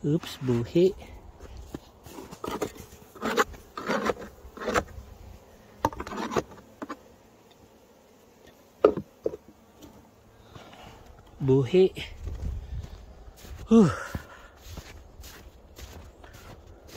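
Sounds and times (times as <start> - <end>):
wooden hive parts scraping: 0.0 - 11.5
bees buzzing: 0.0 - 16.9.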